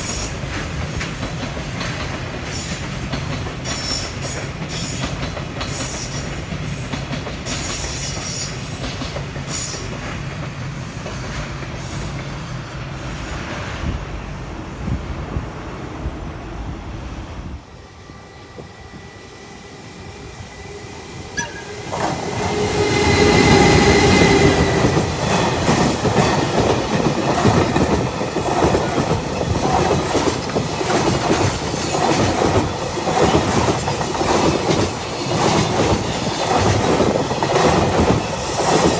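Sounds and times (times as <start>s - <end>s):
train wheels clattering over rails: 0.0s - 13.0s, 21.6s - 38.9s
high wheel squeal: 18.0s - 26.1s.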